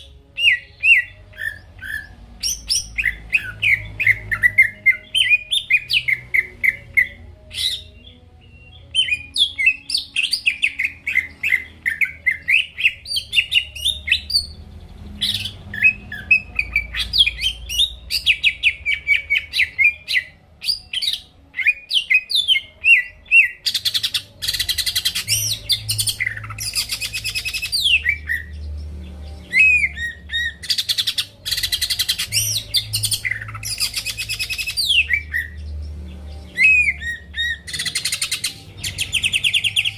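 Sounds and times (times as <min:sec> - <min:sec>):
bird singing chirps and whistles: 0:00.0 - 0:14.6, 0:15.2 - 0:28.7, 0:29.3 - 0:35.7, 0:36.4 - 0:39.9.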